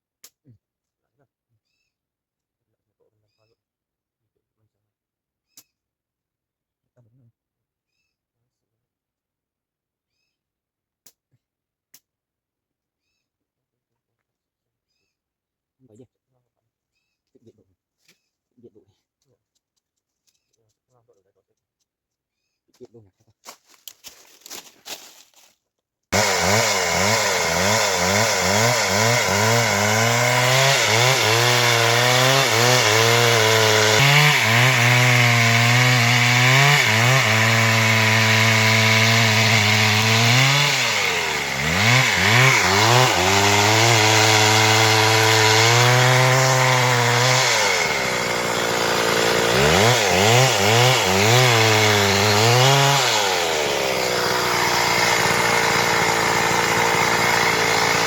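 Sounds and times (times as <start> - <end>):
chainsaw cutting through wood: 26.1 - 58.0.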